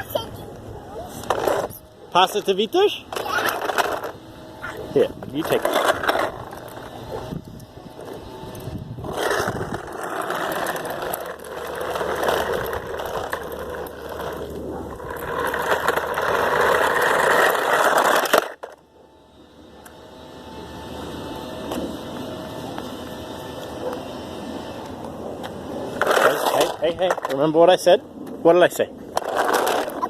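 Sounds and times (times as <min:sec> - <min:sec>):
plastic toy wheels rattling: 0:01.2 - 0:04.2, 0:05.0 - 0:07.4, 0:08.0 - 0:18.8, 0:26.0 - 0:27.9, 0:28.7 - 0:30.0.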